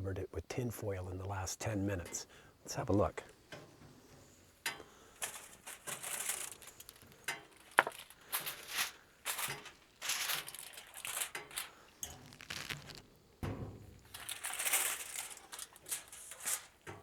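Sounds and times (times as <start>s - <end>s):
aluminium foil crinkling: 4.8s - 17.0s.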